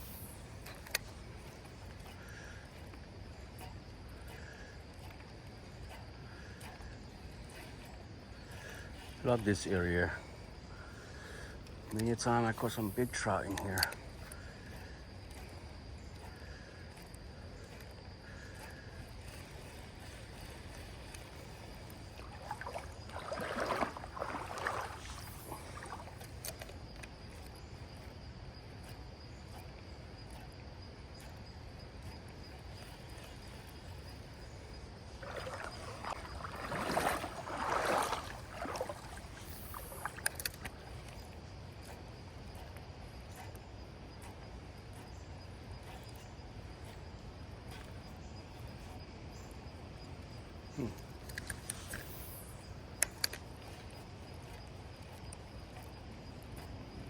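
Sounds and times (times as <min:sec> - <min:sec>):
creek water splashing: 0:05.8 - 0:28.6, 0:31.2 - 0:43.5
low rush of moving water: 0:22.2 - 0:26.2, 0:35.1 - 0:40.2.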